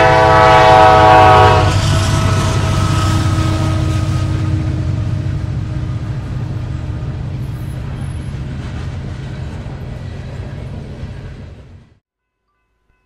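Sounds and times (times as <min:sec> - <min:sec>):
train horn: 0:00.0 - 0:05.9
freight train rumbling past: 0:00.0 - 0:12.0.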